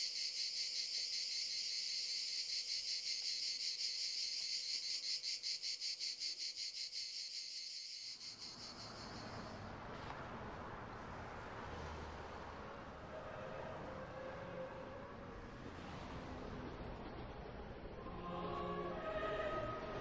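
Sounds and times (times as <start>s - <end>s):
insects chirring: 0.0s - 9.7s.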